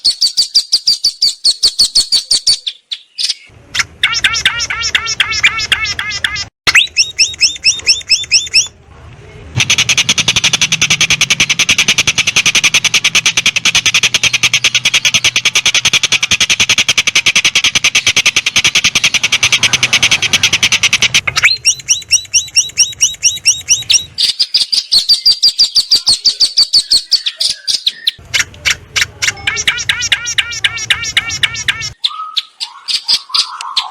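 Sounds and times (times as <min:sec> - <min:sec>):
songbird calling: 0:00.0 - 0:33.9
rapid clicking rattle: 0:09.6 - 0:24.2.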